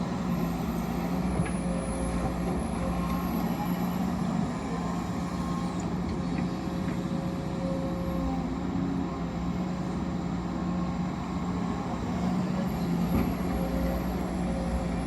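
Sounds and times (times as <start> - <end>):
heavy machinery engine hum: 0.0 - 15.0.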